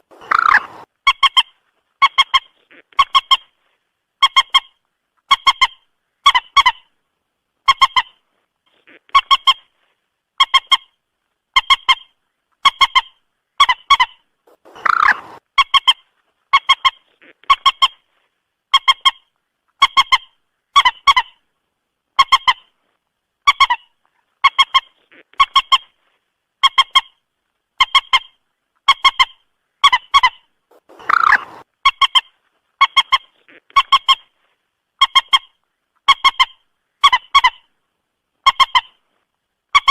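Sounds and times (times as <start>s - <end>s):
harsh moorhen calls: 0.0s - 1.4s, 13.6s - 15.8s, 29.9s - 32.2s
moorhen calling: 0.0s - 3.6s, 11.6s - 18.0s, 28.9s - 34.3s.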